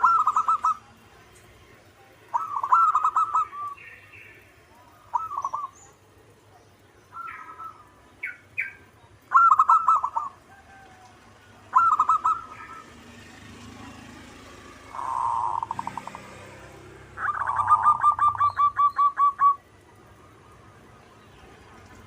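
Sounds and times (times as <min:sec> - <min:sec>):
dove cooing: 0:00.0 - 0:01.0, 0:02.3 - 0:04.0, 0:04.9 - 0:05.9, 0:07.2 - 0:13.0, 0:14.8 - 0:20.5.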